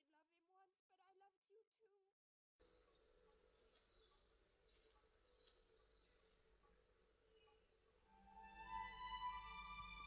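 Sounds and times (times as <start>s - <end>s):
faint background hiss: 2.6s - 10.0s.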